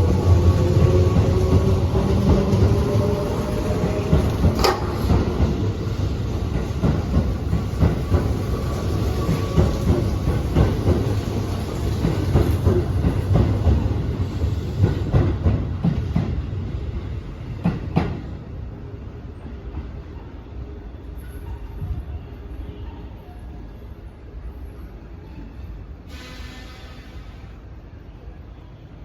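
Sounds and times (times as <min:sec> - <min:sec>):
train rumble: 0:00.0 - 0:29.0
train wheels clattering over rail joints: 0:00.2 - 0:16.4.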